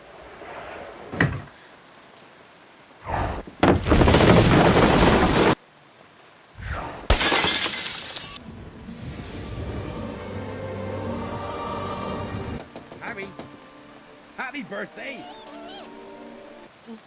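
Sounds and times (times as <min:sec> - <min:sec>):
things smashing and shattering: 0:03.6 - 0:05.6, 0:07.1 - 0:08.4.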